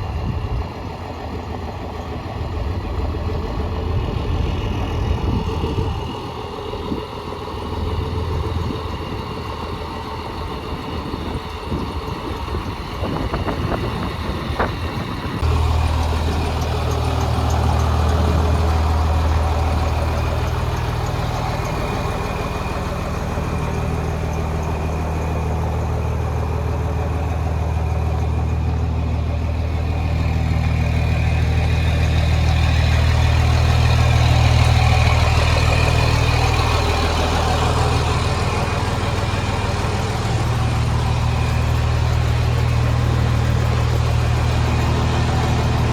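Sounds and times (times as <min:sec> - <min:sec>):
truck engine idling: 0:00.0 - 0:45.9.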